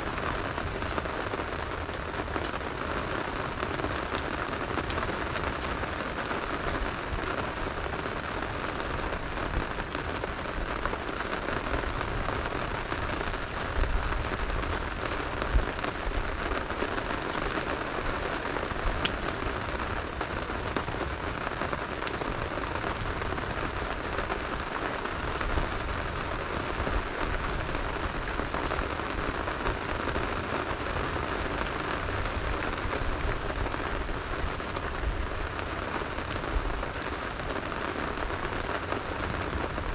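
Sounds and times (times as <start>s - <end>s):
rain pattering: 0.0s - 39.9s
sharp pops or cracks: 19.0s - 19.3s.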